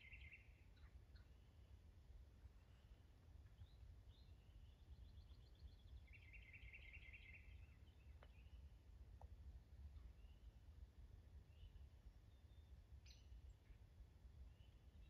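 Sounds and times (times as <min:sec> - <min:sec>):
faint bird chirps: 0:00.0 - 0:01.7, 0:02.5 - 0:08.7
low steady rumble: 0:00.0 - 0:15.0.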